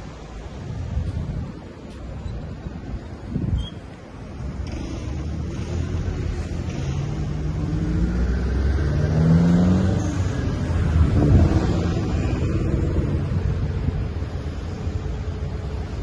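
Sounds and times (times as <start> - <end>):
low traffic rumble: 0.0 - 16.0
vehicle engine accelerating: 4.6 - 13.9.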